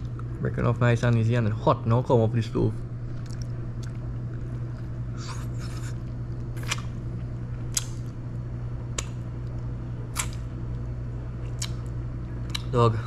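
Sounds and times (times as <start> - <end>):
steady low hum: 0.0 - 13.0
wet mouth smacks chewing: 3.1 - 7.0, 11.5 - 12.7.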